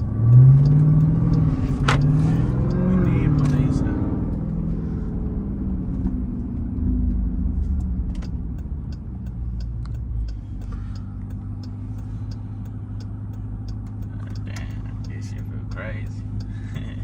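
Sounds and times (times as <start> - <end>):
car engine rumble from cabin: 0.0 - 17.0
faint light clicks: 7.0 - 17.0.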